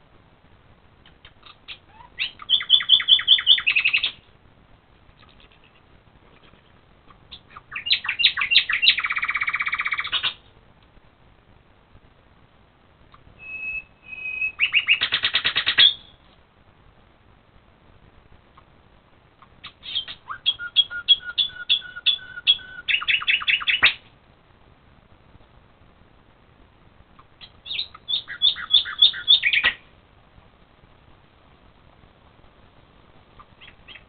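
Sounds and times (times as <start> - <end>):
songbird singing: 1.0 - 4.4, 5.0 - 10.6, 13.1 - 16.4, 19.4 - 24.2, 27.1 - 29.9, 33.3 - 34.0.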